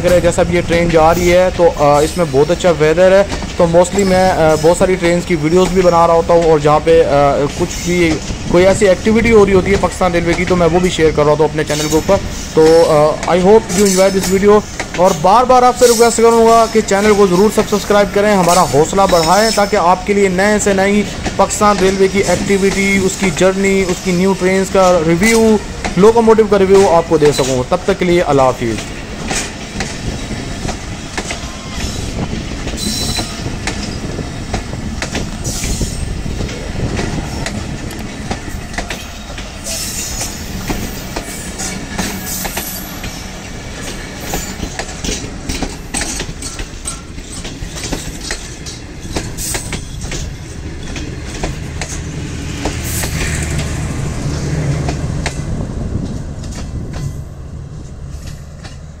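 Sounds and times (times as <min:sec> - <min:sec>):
clickety-clack over rail joints: 0:00.0 - 0:59.0
train wheels rumbling on rails: 0:00.0 - 0:59.0
wheel squeals: 0:31.3 - 0:34.2, 0:36.8 - 0:52.1.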